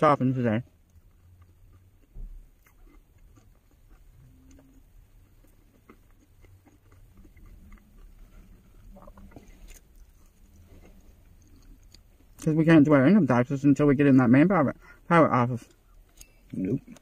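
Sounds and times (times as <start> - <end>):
chewing snack with crunches: 0.3 - 12.8.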